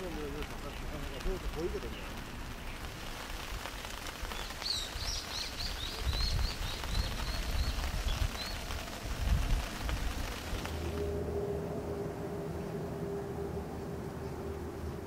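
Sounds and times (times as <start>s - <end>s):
low outdoor rumble: 5.7s - 15.0s.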